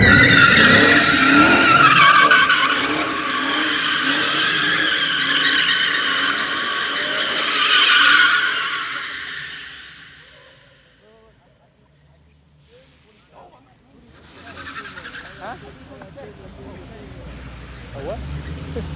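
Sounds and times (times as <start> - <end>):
car tyres squealing: 0.0 - 11.0, 14.0 - 16.5.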